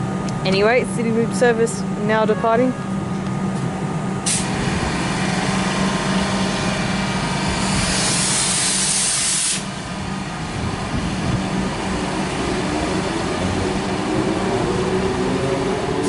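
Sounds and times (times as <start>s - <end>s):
electric train humming: 0.0s - 16.0s
air hiss: 7.6s - 9.8s.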